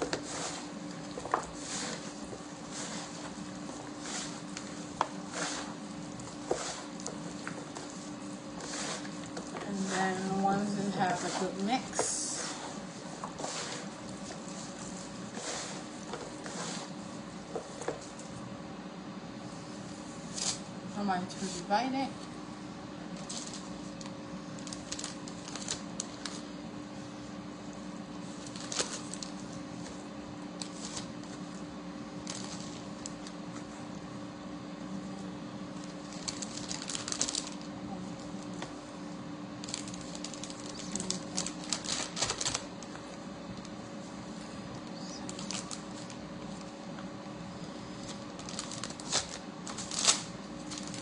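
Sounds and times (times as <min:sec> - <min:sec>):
plastic bags rustling: 0:00.0 - 0:18.3, 0:23.2 - 0:26.5, 0:28.2 - 0:30.0, 0:32.2 - 0:33.7, 0:35.7 - 0:37.7, 0:39.6 - 0:43.0, 0:44.9 - 0:46.8, 0:47.9 - 0:51.0
air fryer humming: 0:00.0 - 0:51.0
plastic bags crinkling: 0:23.2 - 0:26.4, 0:28.3 - 0:29.4, 0:32.2 - 0:33.4, 0:35.8 - 0:37.7, 0:39.6 - 0:43.0, 0:44.9 - 0:46.7, 0:48.0 - 0:51.0.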